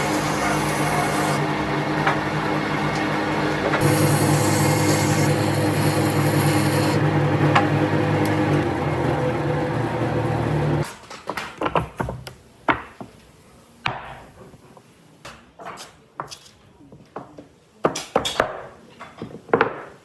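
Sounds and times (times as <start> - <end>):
electric power tool cutting wood: 0.0 - 10.8.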